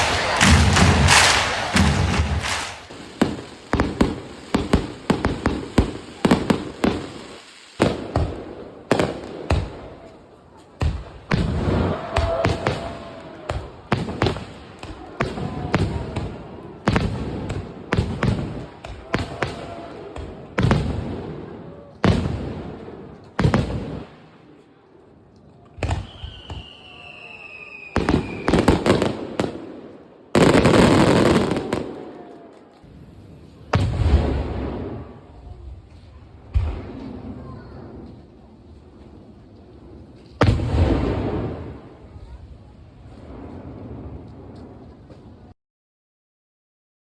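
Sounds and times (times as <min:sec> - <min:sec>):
falling firework whistle: 0:00.0 - 0:04.8, 0:25.8 - 0:29.1
firework shells bursting: 0:00.0 - 0:08.3
crackling firework bursts: 0:00.0 - 0:24.5, 0:25.8 - 0:45.5.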